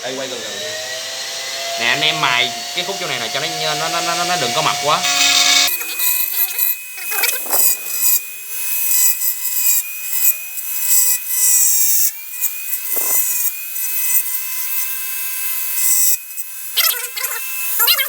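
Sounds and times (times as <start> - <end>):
rotary grinding tool whining: 0.0 - 18.0
bit rasping into plastic: 12.8 - 13.5.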